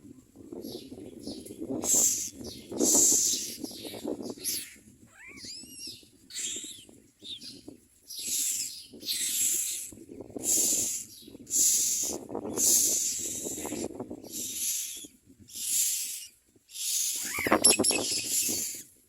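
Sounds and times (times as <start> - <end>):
nestlings begging screeches: 1.9 - 3.7, 4.4 - 7.4, 8.2 - 18.8
whistled bird call: 16.8 - 18.8.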